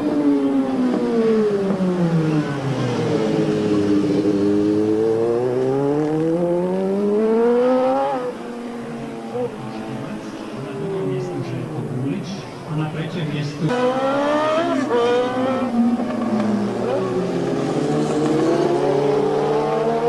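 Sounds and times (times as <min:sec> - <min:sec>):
superbike engine revving: 0:00.6 - 0:11.0, 0:13.7 - 0:20.0.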